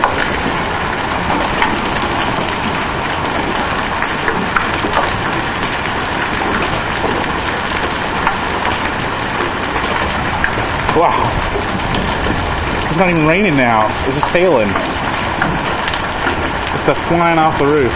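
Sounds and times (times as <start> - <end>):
hail clattering on hard surfaces: 0.0 - 17.9.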